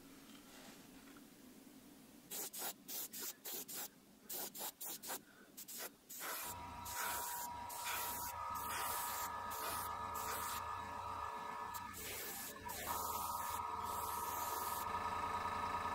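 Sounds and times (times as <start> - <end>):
airbrush spraying: 2.3 - 10.7, 11.7 - 14.9
low hum: 6.5 - 15.9
steady whine: 6.5 - 15.9.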